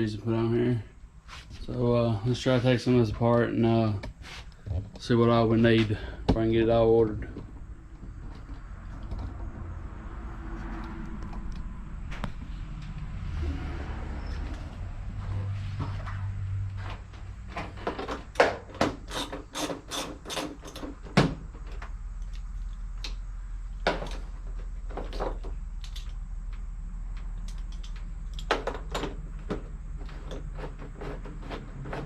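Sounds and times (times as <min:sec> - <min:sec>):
hand tools clicking on metal: 0:19.0 - 0:21.0.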